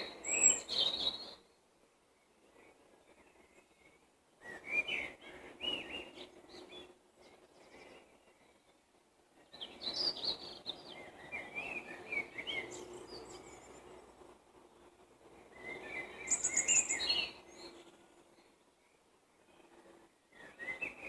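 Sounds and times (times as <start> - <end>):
songbirds chirping and trilling: 0.0 - 21.0.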